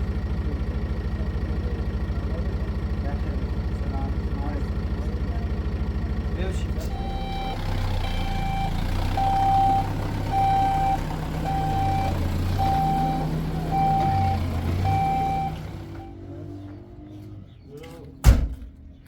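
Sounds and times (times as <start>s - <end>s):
engine rumbling: 0.0s - 19.0s
reversing alarm beeping: 6.9s - 16.3s.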